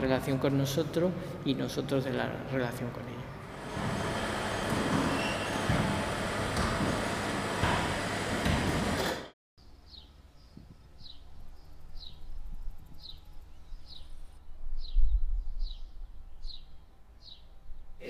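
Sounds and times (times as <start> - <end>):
loud mechanical rumble: 3.4 - 9.3.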